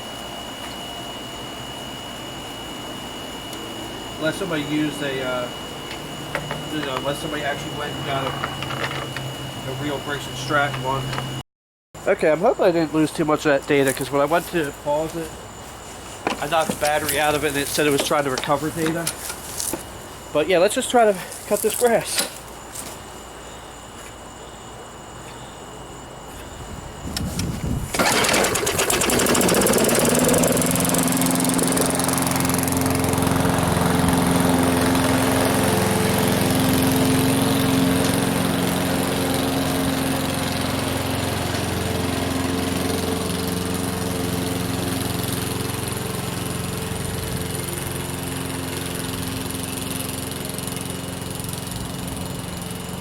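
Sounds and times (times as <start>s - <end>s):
lawn mower engine running: 2.4s - 11.4s, 15.9s - 19.9s, 27.2s - 53.0s
rattle: 27.9s - 30.9s.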